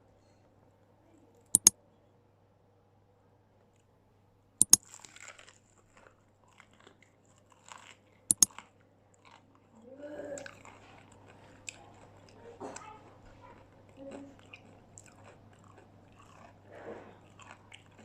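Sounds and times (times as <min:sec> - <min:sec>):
crunchy chewing: 0:04.6 - 0:09.8, 0:10.4 - 0:18.0
crunching bites of fried food: 0:14.4 - 0:16.6, 0:17.2 - 0:18.0.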